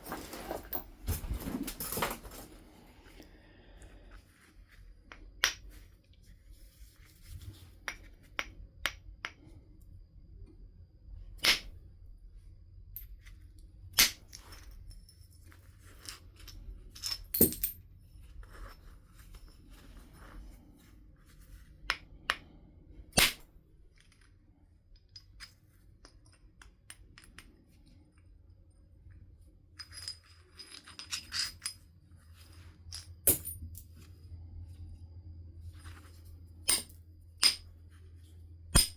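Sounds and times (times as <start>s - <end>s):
stone striking flint: 11.4s - 11.8s, 14.0s - 14.3s, 23.2s - 23.5s, 36.7s - 37.7s
light taps and clinks of stone: 14.0s - 17.8s.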